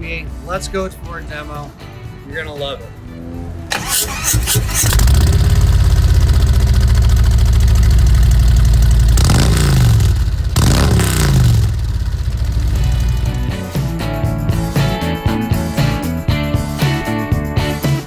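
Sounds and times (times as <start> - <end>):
motorcycle engine idling and revving: 3.2 - 16.0.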